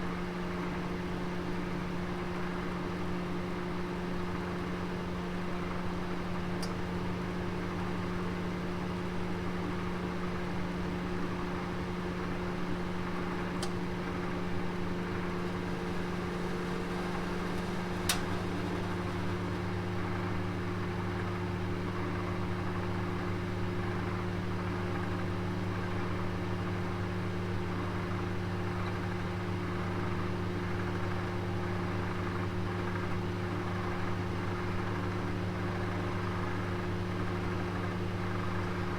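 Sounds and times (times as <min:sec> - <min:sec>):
oven humming: 0:01.1 - 0:32.5.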